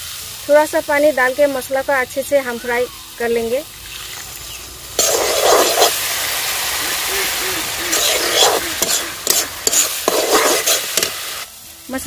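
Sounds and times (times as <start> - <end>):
masala hissing in hot oil: 0.0 - 12.0
stirring in a pan: 4.3 - 11.4.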